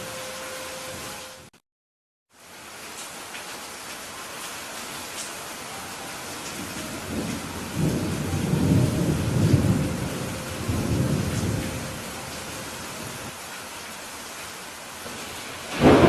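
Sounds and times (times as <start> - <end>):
steady rainfall: 0.0 - 1.6, 2.3 - 16.0
thunder rolling: 6.5 - 13.3, 15.1 - 16.0.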